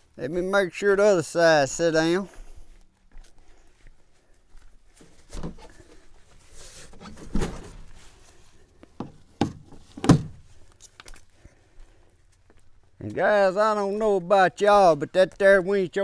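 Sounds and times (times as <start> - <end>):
thumps and knocks on truck hood: 9.0 - 10.4.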